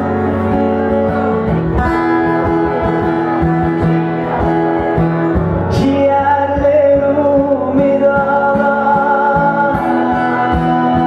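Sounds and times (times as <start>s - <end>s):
acoustic guitar strumming: 0.0s - 11.0s
person singing: 5.7s - 11.0s.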